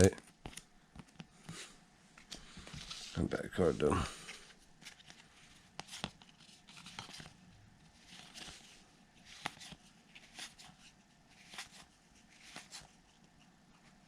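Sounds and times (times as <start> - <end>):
cards rustling: 0.0 - 1.6, 2.2 - 14.0.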